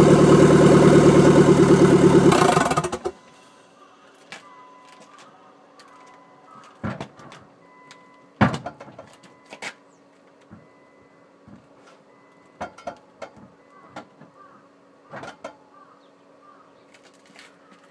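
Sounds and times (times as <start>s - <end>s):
knocks and clunks: 6.8s - 7.5s, 8.4s - 9.4s, 15.1s - 15.6s.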